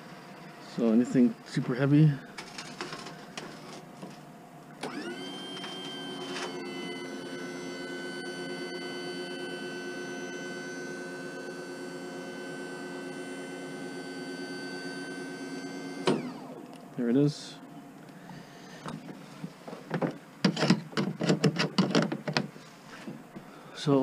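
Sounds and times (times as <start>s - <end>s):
electric motor whining: 4.8s - 16.7s.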